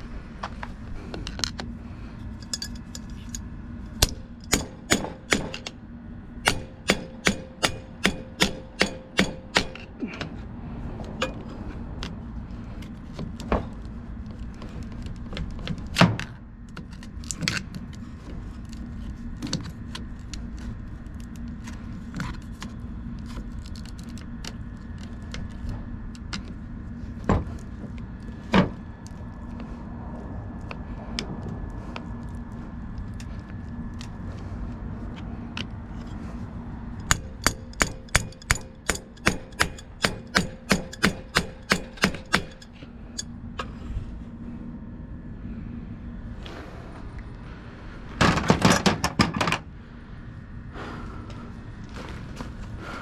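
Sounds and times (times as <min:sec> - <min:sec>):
hammer blows on metal: 0:04.0 - 0:05.7, 0:06.4 - 0:10.2, 0:37.0 - 0:42.7
metal knocks and clanks: 0:04.0 - 0:05.7, 0:37.0 - 0:42.8.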